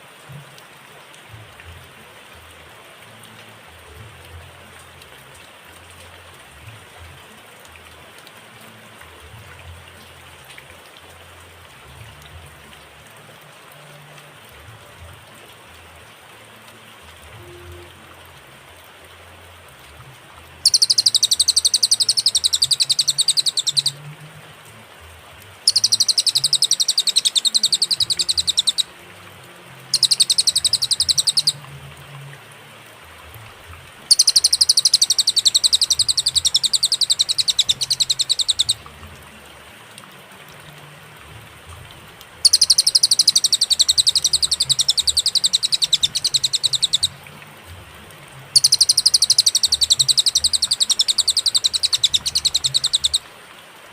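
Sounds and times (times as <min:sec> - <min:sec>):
songbird rapid high trills: 0:20.6 - 0:24.0, 0:25.6 - 0:29.0, 0:29.8 - 0:31.6, 0:34.1 - 0:38.9, 0:42.4 - 0:47.2, 0:48.6 - 0:53.2.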